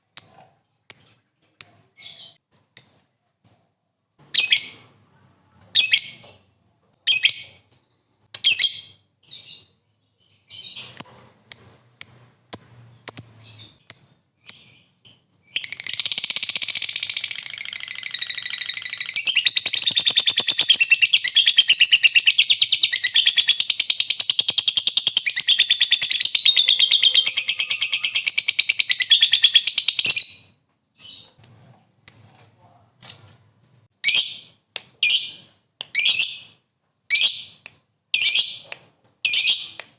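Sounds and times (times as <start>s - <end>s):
lovebird shrill chirps: 11.5s - 32.2s.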